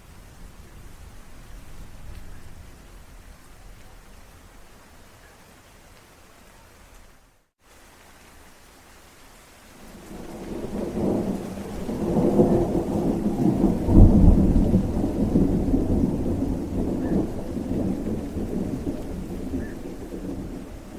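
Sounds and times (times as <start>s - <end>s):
thunder rumbling: 0.0s - 5.1s, 9.8s - 20.9s
steady rain: 0.0s - 20.9s.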